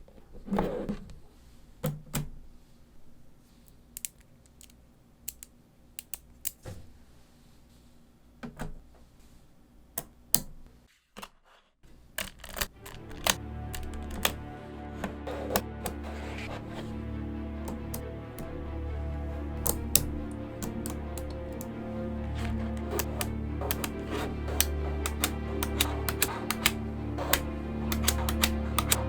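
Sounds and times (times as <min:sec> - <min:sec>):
magnetic balls clicking together: 0:03.9 - 0:06.6, 0:12.2 - 0:14.5, 0:17.6 - 0:18.8, 0:19.5 - 0:29.0
music: 0:12.6 - 0:29.0.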